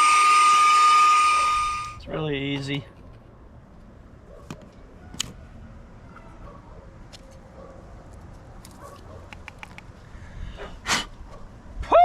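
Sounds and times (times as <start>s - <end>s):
sharp plastic clicks: 8.6s - 9.9s.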